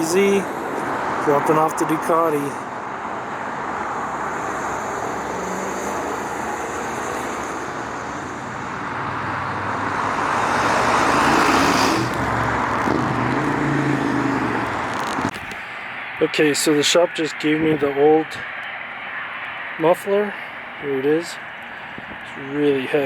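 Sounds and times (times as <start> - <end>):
motor vehicle passing: 0.0 - 16.1
road traffic noise: 0.0 - 23.0.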